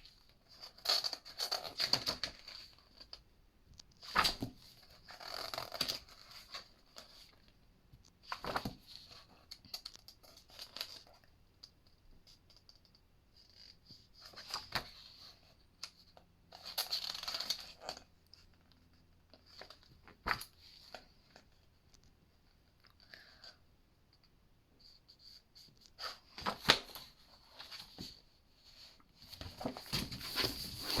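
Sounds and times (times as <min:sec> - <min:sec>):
book pages turning: 0:08.3 - 0:08.8, 0:25.6 - 0:28.2, 0:29.2 - 0:31.0.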